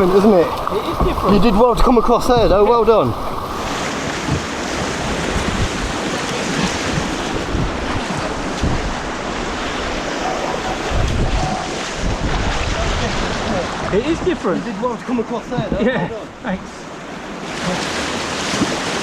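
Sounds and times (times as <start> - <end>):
wind buffeting microphone: 0.0 - 14.5
rushing white water: 0.0 - 19.0.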